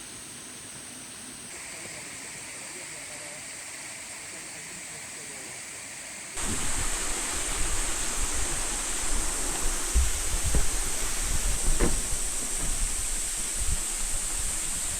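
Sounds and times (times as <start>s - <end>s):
waterfall rushing: 5.8s - 14.9s.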